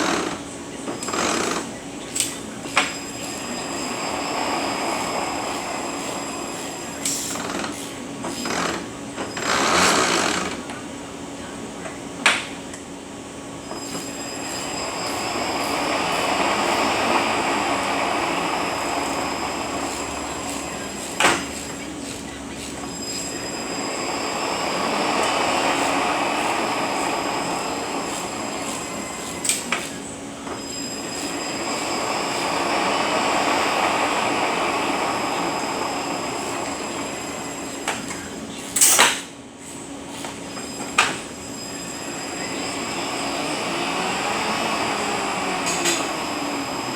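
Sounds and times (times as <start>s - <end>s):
transmission gear noise: 0.0s - 11.0s, 13.4s - 39.0s.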